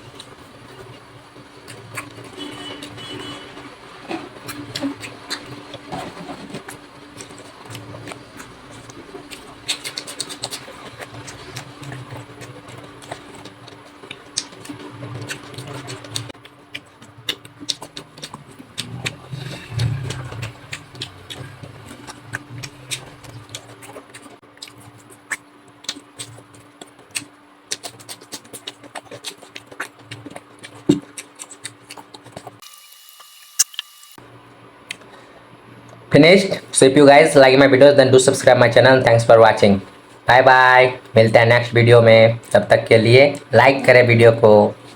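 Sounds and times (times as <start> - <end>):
person chewing food: 0.0 - 32.6, 34.8 - 36.1.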